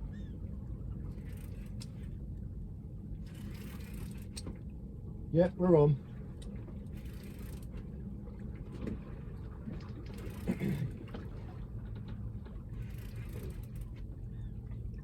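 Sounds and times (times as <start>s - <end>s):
small boat rumbling: 0.0s - 15.0s
short low grunt: 10.4s - 11.0s.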